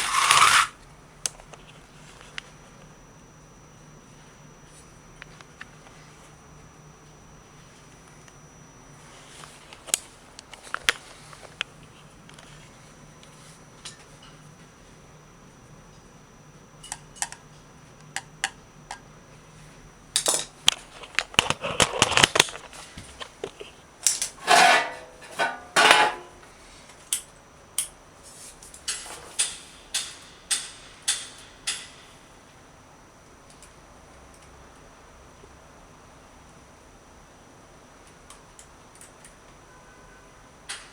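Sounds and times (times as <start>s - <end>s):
clattering of small hard parts: 20.2s - 22.7s, 23.4s - 26.4s
rattling and scraping: 24.4s - 26.4s.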